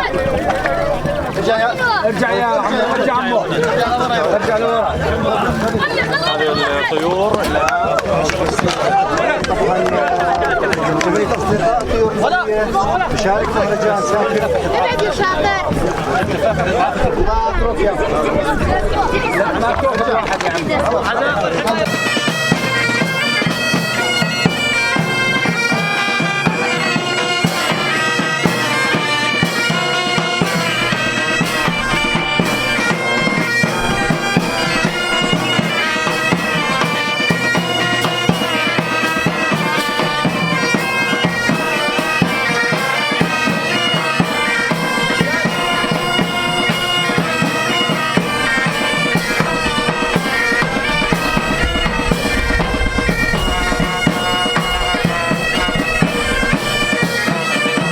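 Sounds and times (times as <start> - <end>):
bagpipe band playing: 0.0 - 57.9
drumbeats: 0.0 - 57.9.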